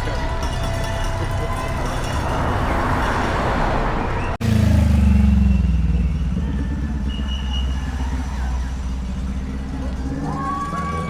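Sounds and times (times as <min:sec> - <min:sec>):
road noise: 0:00.0 - 0:11.0
motorcycle engine running: 0:04.4 - 0:11.0.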